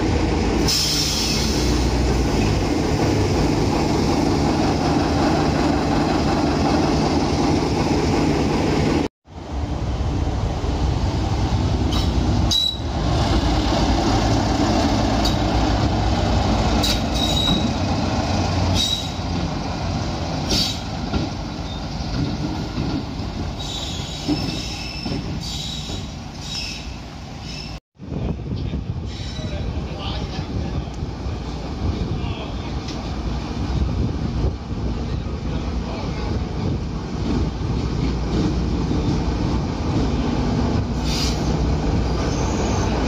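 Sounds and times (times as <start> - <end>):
train rumbling past: 0.0 - 43.0
wheel squeals: 11.9 - 12.9, 16.8 - 17.8, 18.7 - 19.2, 23.6 - 27.8, 42.1 - 43.0.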